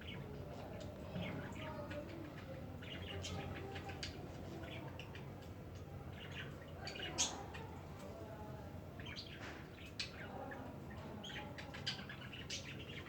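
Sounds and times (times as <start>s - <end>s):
small birds chirping: 11.2s - 13.0s.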